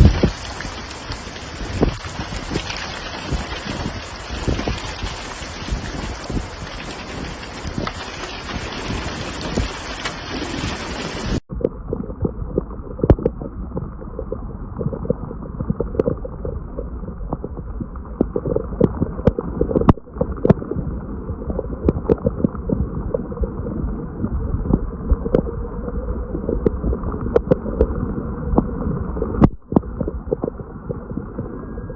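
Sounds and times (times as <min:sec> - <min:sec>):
heavy rain: 0:00.0 - 0:11.4
running water: 0:00.0 - 0:14.1.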